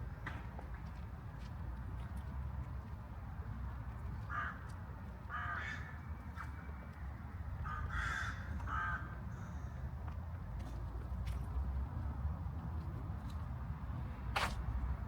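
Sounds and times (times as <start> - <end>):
low city rumble: 0.0 - 15.0
crow cawing: 5.3 - 5.9, 7.6 - 9.7.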